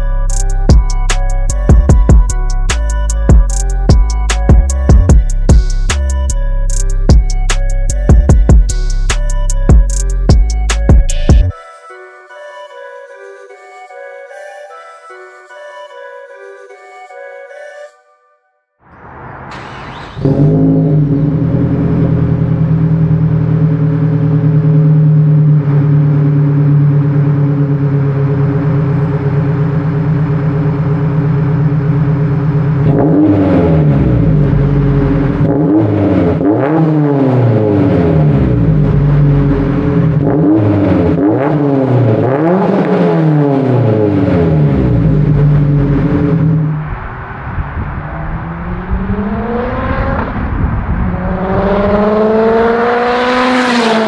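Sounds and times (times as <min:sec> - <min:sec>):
turbocharged car engine revving: 0:18.9 - 0:54.0.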